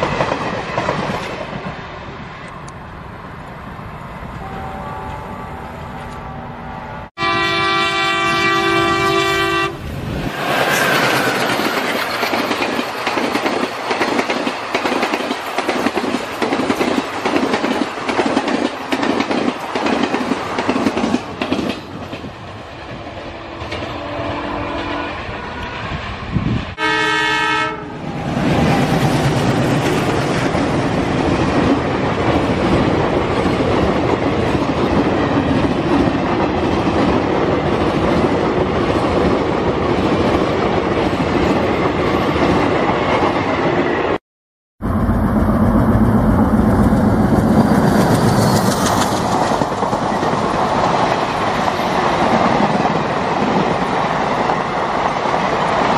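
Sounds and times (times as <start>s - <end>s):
train wheels clickety-clack: 0.0s - 1.8s, 10.5s - 24.0s, 28.3s - 44.2s, 45.5s - 55.9s
train running noise: 0.0s - 44.2s, 44.8s - 55.9s
train horn: 4.4s - 9.9s, 23.2s - 25.9s, 26.8s - 28.2s.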